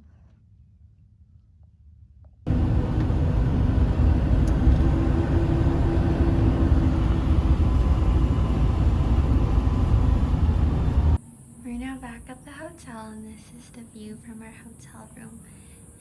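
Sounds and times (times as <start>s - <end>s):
moving vehicle rumble: 2.5s - 11.2s
faint engine hum: 2.5s - 13.0s.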